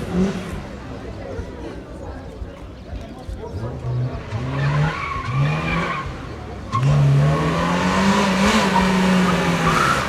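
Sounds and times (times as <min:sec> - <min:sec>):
rally car engine accelerating: 0:00.0 - 0:00.9, 0:03.5 - 0:10.0.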